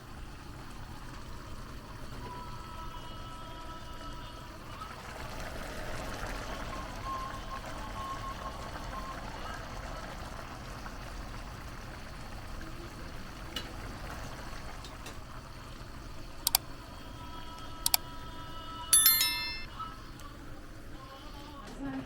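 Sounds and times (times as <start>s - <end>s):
sharp metallic clinks: 19.0s - 19.8s.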